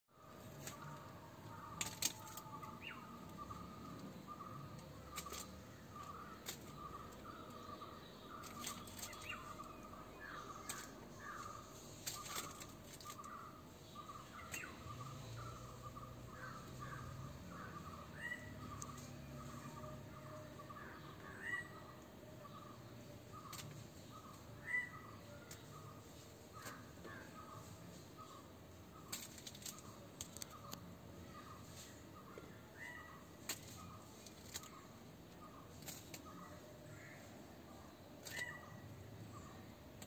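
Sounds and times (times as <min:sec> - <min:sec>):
bird calling repeated notes: 0:23.3 - 0:25.9.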